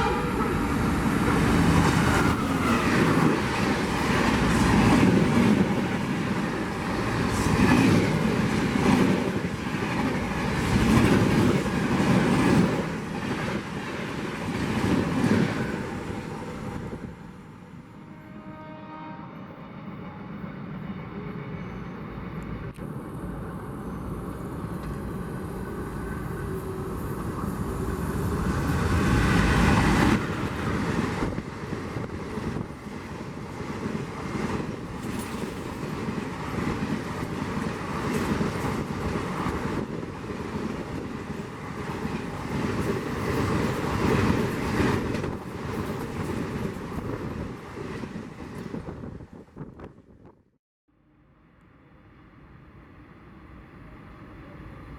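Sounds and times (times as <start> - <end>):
locomotive passing at speed: 0.0 - 17.6, 22.0 - 50.3
train wheels clattering on rails: 24.4 - 48.9.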